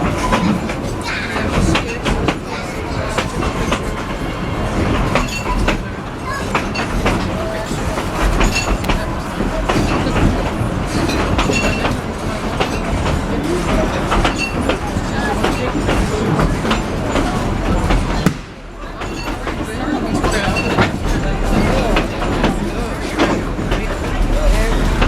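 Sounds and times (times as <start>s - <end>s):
train rumbling on track: 0.0s - 25.0s.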